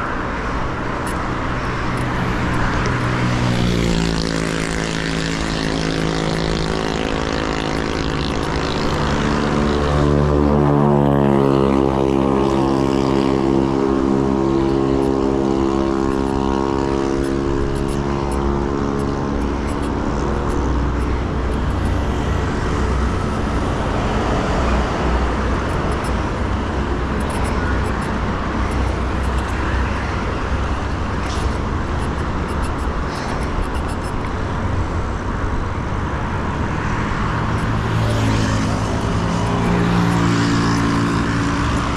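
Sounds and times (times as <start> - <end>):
heavy vehicle engine droning: 0.0 - 33.1
traffic rush: 0.0 - 41.9.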